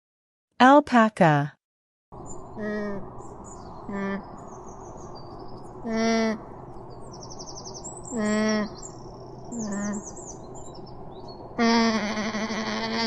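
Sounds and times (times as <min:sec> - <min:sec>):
small birds chirping: 0:02.2 - 0:11.7.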